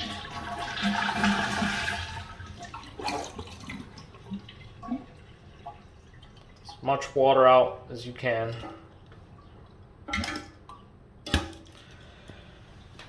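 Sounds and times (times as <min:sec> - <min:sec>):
toilet flushing: 0:00.0 - 0:07.0.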